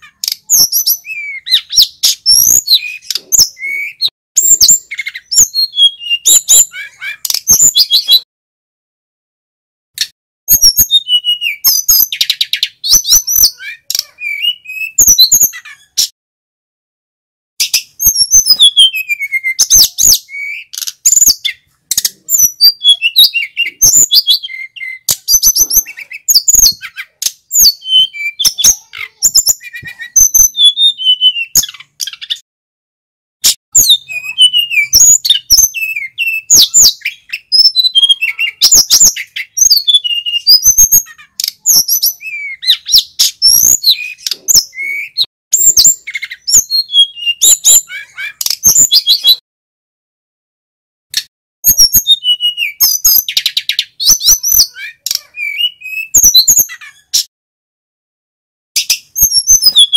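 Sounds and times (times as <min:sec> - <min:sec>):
flycatcher whistled song: 0:17.7 - 0:21.4, 0:33.7 - 0:40.9, 0:51.7 - 0:54.6.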